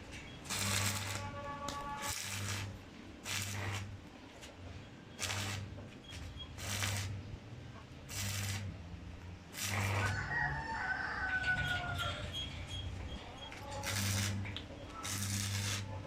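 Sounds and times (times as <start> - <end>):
rooster crowing: 9.8 - 12.4.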